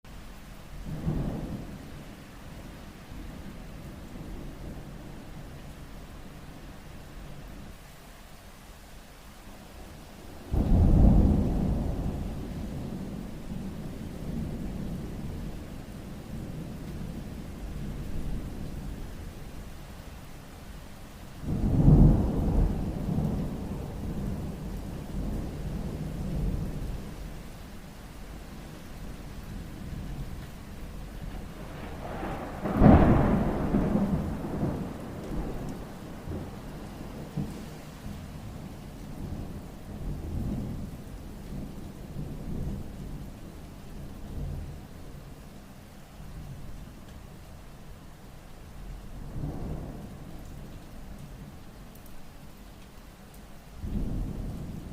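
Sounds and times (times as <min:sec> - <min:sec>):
steady rain: 0:00.0 - 0:54.9
thunder rumbling: 0:00.8 - 0:07.4, 0:10.2 - 0:19.7, 0:21.4 - 0:45.4, 0:48.8 - 0:51.6, 0:53.8 - 0:54.9.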